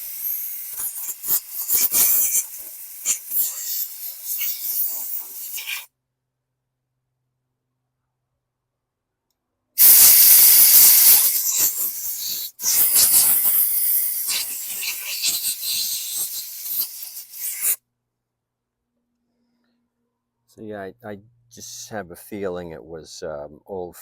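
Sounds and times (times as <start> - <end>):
pressurised spray hissing: 0.0 - 5.9, 9.8 - 17.8.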